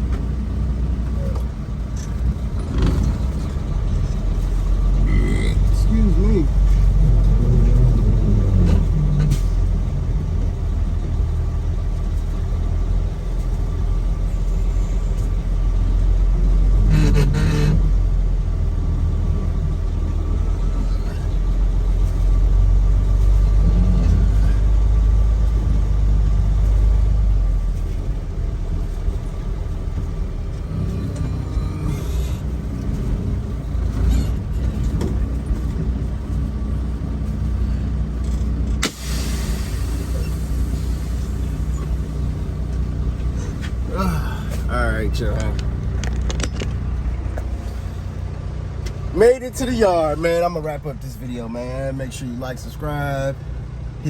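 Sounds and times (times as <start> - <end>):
road noise: 0.0 - 54.0
truck engine rumble: 0.0 - 54.0
short hiss burst: 38.8 - 41.3.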